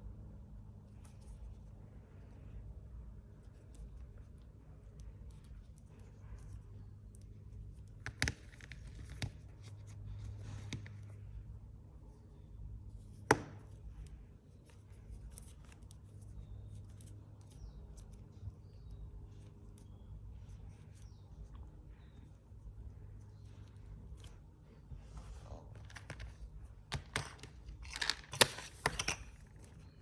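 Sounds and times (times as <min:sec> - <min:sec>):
low steady hum: 0:00.0 - 0:30.0
packaging clicks and rustles: 0:25.8 - 0:29.7.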